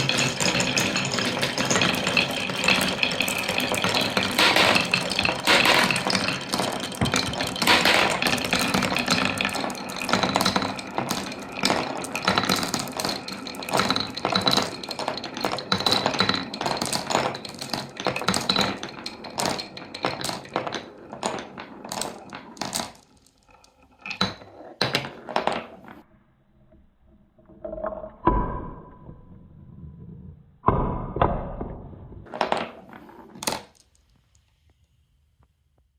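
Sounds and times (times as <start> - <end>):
marbles clattering on wooden run: 0.0 - 26.0, 32.2 - 34.1.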